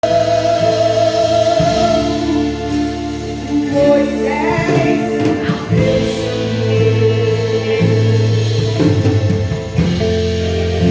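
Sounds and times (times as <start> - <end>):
gospel singing: 0.0 - 10.9
held instrumental notes: 0.0 - 10.9
percussion strokes: 0.0 - 10.9.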